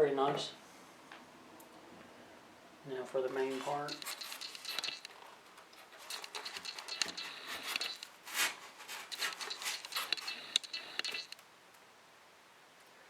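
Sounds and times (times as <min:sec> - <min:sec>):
packaging rustling and scraping: 0:03.3 - 0:10.6.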